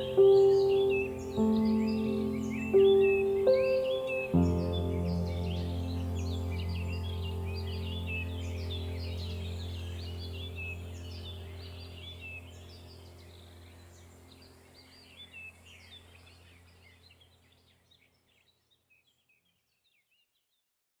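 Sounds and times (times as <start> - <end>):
birds chirping: 0.0 - 19.3.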